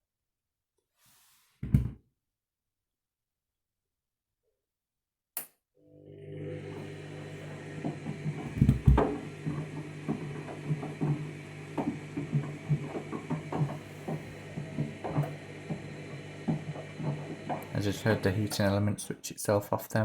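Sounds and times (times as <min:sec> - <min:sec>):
washing machine motor hum: 0:05.8 - 0:19.0.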